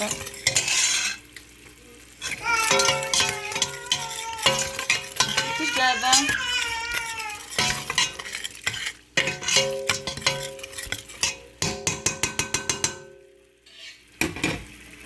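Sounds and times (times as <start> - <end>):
spoon clinking against pot: 0.0 - 1.2, 2.2 - 13.2
spoon tapping pot: 2.3 - 13.2.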